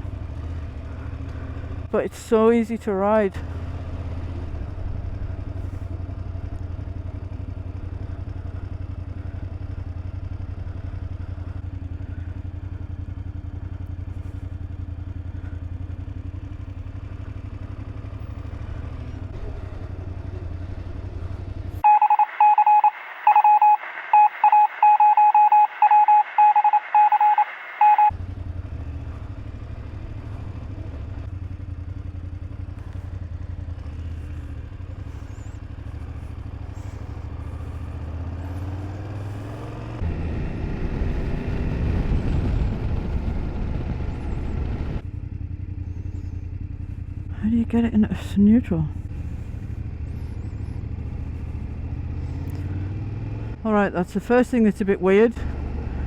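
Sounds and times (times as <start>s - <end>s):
motorcycle engine rumble: 0.0s - 21.9s, 28.1s - 56.0s
electronic beeps: 21.8s - 28.1s.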